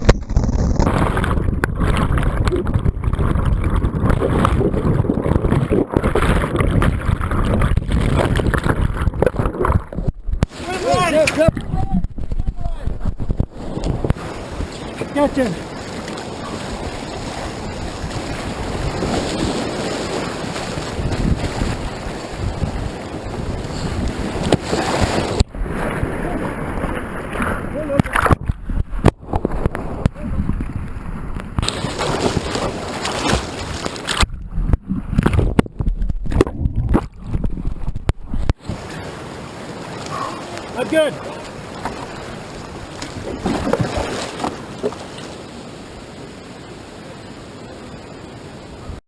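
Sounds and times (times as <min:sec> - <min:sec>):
wind buffeting microphone: 0:00.0 - 0:40.7
river rushing: 0:10.5 - 0:11.8, 0:13.5 - 0:28.3, 0:38.6 - 0:49.0
heavy water sloshes: 0:13.2 - 0:46.5.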